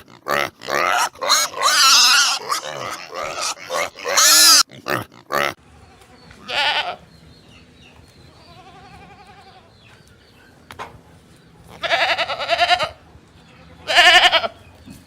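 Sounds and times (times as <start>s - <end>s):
animal bleating: 0.0s - 7.0s, 8.3s - 9.7s, 11.7s - 14.6s.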